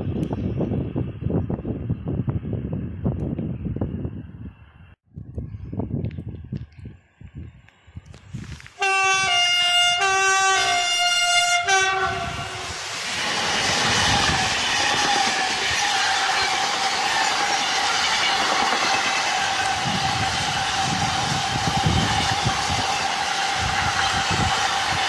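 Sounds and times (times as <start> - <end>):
train wheels rushing on rail: 8.3 - 25.0
locomotive horn blasts: 8.8 - 12.7
steady train whine: 8.8 - 25.0.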